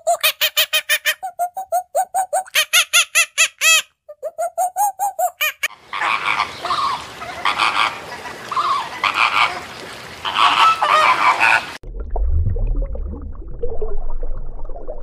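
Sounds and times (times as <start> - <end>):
monkey calls: 0.0 - 7.9
background bird noise: 2.6 - 11.8
flamingos honking: 5.4 - 11.8.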